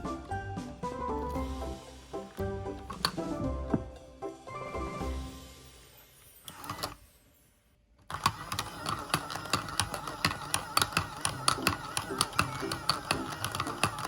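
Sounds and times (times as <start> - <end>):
background music: 0.0 - 7.1, 8.7 - 14.0
toy motor whining: 6.2 - 14.0
rapid mechanical clicking: 8.1 - 14.0.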